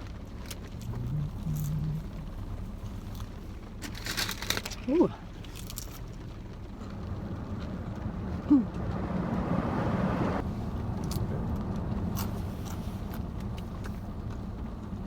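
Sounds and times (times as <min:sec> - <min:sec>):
car engine idling: 0:00.0 - 0:15.0
person humming: 0:00.8 - 0:02.6.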